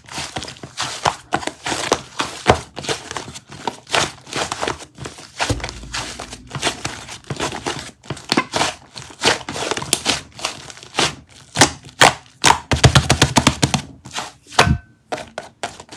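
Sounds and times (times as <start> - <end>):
knock: 5.5 - 7.3.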